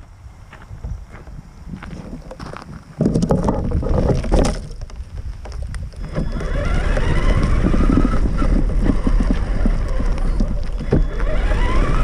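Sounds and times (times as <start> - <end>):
chassis and tyres rumbling: 0.0 - 12.0
electric motor and gears whining: 3.0 - 12.0.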